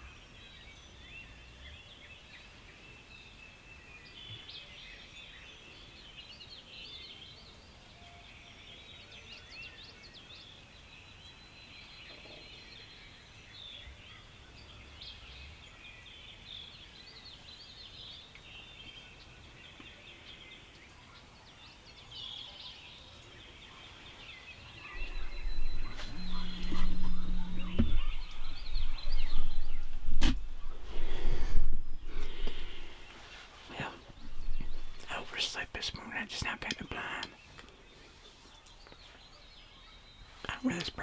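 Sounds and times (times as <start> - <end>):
songbirds chirping and trilling: 0.0 - 41.0
distant turkey gobbling: 25.0 - 30.9.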